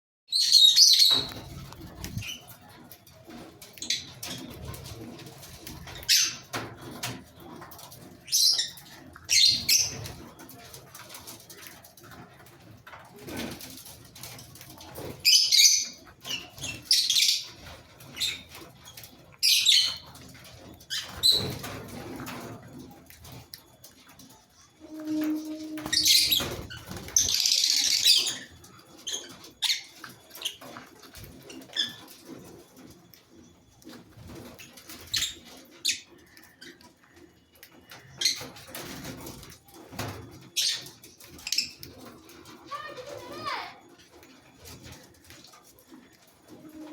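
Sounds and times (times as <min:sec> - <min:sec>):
birds chirping: 0:00.3 - 0:12.7, 0:13.4 - 0:46.9
wings flapping and scuffling: 0:00.7 - 0:46.9
lovebird screeching chatter: 0:27.2 - 0:28.5.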